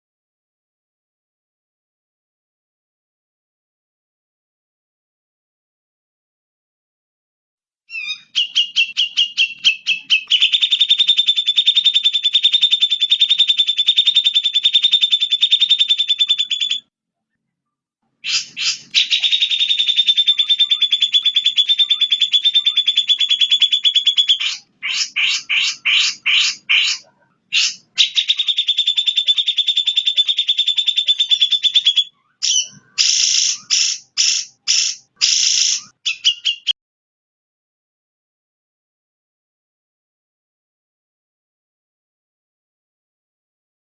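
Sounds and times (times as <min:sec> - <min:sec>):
fast pulsed bird trills: 0:07.9 - 0:16.9, 0:18.2 - 0:36.8.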